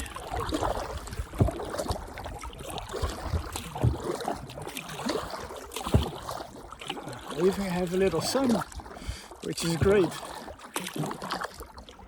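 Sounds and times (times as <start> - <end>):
paddle splashing water: 0.0 - 12.0
low thump: 1.4 - 1.7, 5.9 - 6.2.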